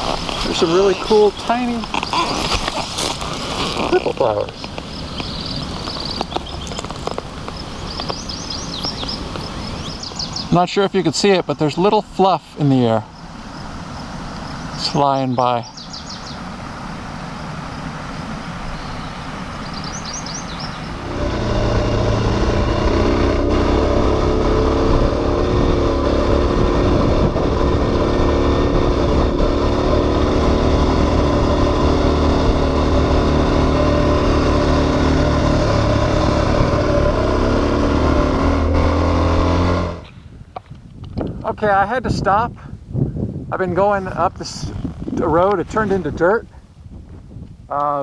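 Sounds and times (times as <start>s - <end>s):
motorcycle engine running: 21.0s - 40.1s.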